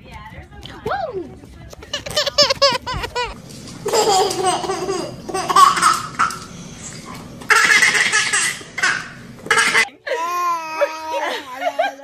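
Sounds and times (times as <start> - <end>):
baby laughing: 1.9 - 6.5, 7.5 - 12.0.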